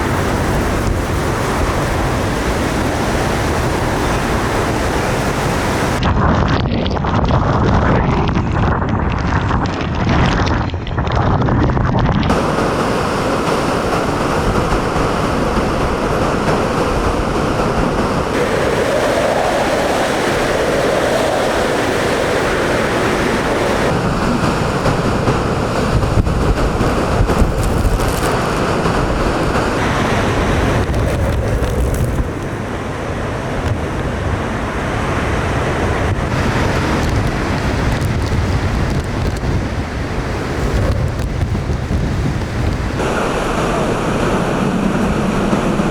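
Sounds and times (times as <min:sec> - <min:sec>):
strong wind buffeting microphone: 0:00.0 - 0:45.9.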